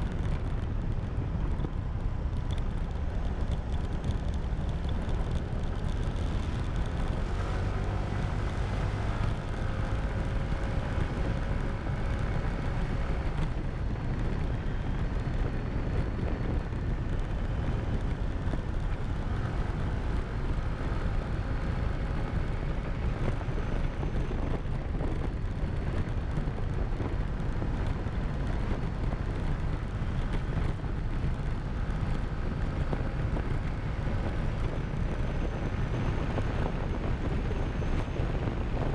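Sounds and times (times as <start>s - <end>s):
wind rumble on microphone: 0.0s - 38.9s.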